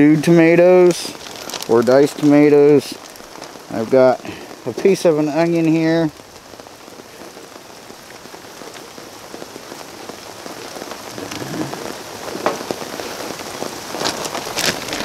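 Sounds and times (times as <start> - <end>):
steady rain falling: 0.0 - 15.0
plastic zip bag rustling: 1.0 - 3.6, 14.0 - 15.0.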